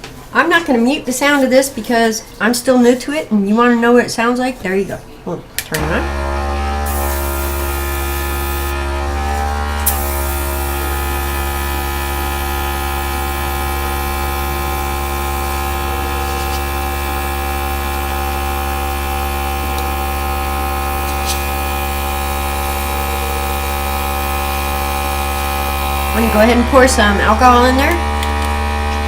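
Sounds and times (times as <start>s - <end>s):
airbrush compressor humming: 5.8s - 29.0s.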